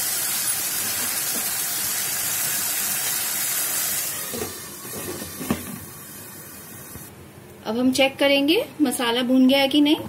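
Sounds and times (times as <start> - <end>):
sauce sizzling in hot oil: 0.0 - 7.1.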